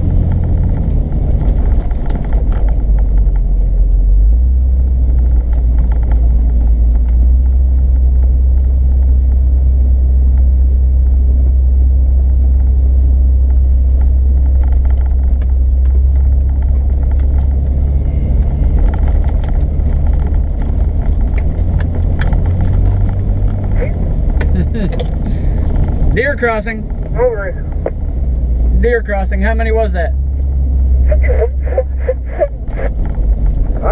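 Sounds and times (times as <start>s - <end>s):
off-road vehicle engine rumble: 0.0s - 33.9s
small clicks and rattles: 5.1s - 9.1s, 13.5s - 17.8s, 18.4s - 25.3s.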